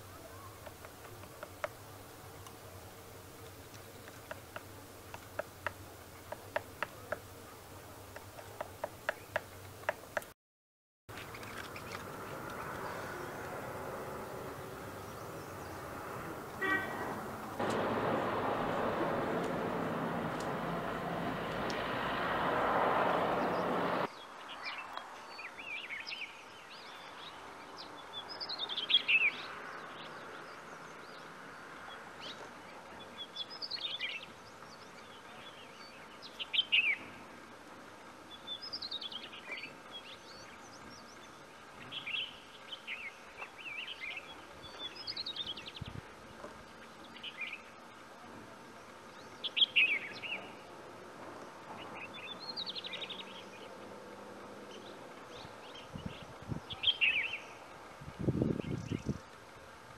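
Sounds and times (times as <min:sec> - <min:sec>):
birds chirping: 0:00.0 - 0:10.3, 0:11.1 - 0:37.2, 0:51.4 - 0:53.9, 0:54.6 - 0:57.7.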